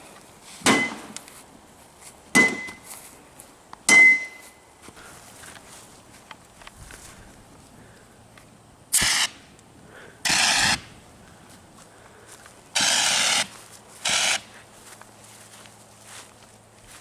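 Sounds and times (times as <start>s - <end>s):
loud hissing bursts: 8.9s - 9.5s, 10.2s - 11.0s.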